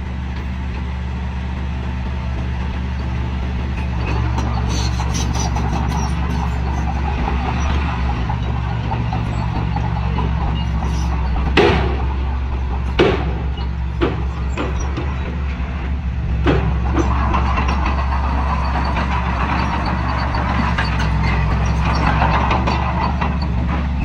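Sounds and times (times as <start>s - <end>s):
diesel engine running: 0.0s - 24.0s
sharp knocks: 8.0s - 15.6s, 16.4s - 23.4s.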